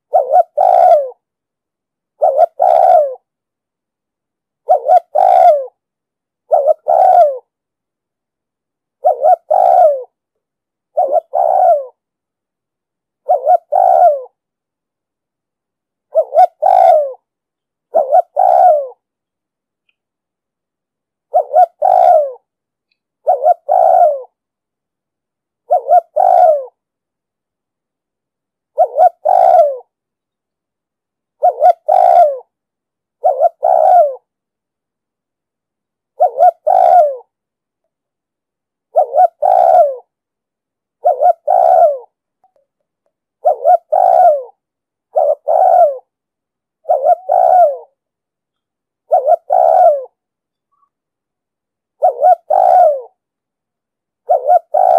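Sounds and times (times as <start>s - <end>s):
dove cooing: 0.0s - 1.2s, 2.2s - 3.3s, 4.6s - 5.8s, 6.5s - 7.5s, 9.0s - 10.2s, 10.9s - 12.0s, 13.2s - 14.4s, 16.1s - 17.3s, 17.9s - 19.1s, 21.3s - 22.5s, 23.2s - 24.4s, 25.6s - 26.8s, 28.7s - 29.9s, 31.4s - 32.5s, 33.2s - 34.3s, 36.1s - 37.3s, 38.9s - 40.1s, 41.0s - 42.2s, 43.4s - 46.2s, 46.8s - 48.0s, 49.0s - 51.0s, 52.0s - 53.2s, 54.2s - 54.9s.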